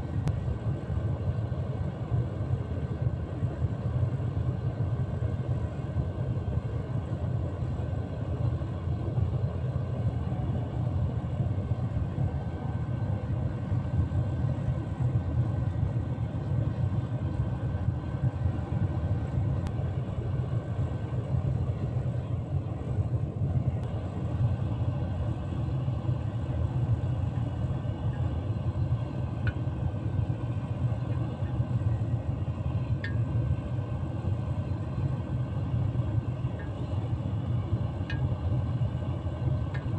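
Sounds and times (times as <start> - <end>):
furnace burner rumbling: 0.0 - 39.9
faint ticks: 33.0 - 33.2, 38.0 - 38.2.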